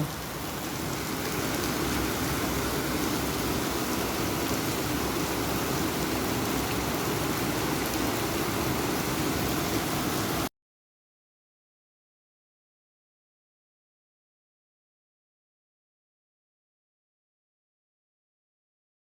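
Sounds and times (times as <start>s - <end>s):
heavy rain falling: 0.0s - 10.5s.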